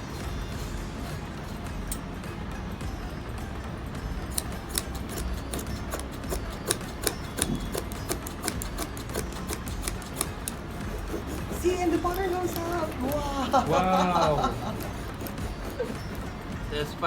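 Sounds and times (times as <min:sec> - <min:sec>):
scissors snipping carpet pile: 0:04.2 - 0:16.6.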